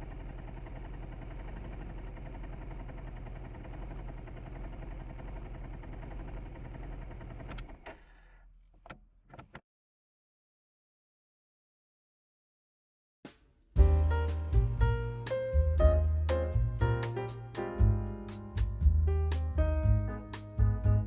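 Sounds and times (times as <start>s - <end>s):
scooter engine running: 0.0s - 7.9s.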